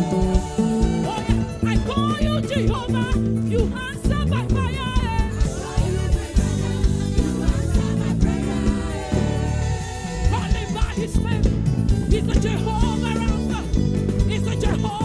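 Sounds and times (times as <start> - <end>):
church band playing gospel music: 0.0 - 15.0
person singing ornamented runs: 3.6 - 11.4.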